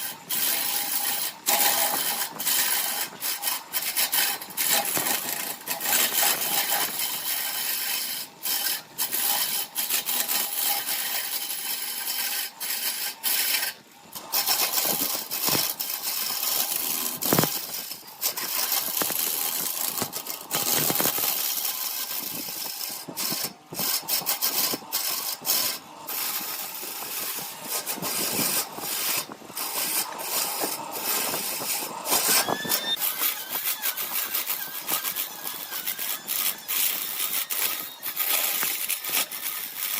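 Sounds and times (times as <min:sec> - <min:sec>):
wood lathe tool scraping: 0:00.0 - 0:39.9
short squeal: 0:32.1 - 0:38.4.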